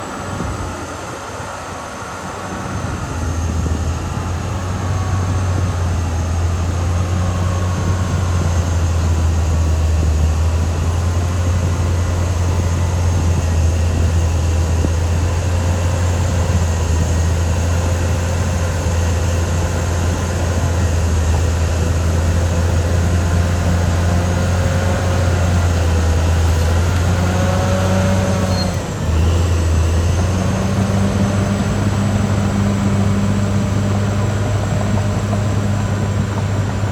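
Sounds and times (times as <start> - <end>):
bulldozer diesel engine droning: 0.0 - 36.9
faint wavering squeals: 28.3 - 30.9.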